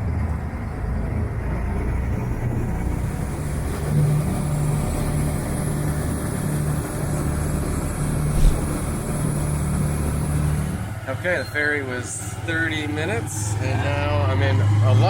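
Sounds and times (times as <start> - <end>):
low thump of bump: 8.3 - 8.9.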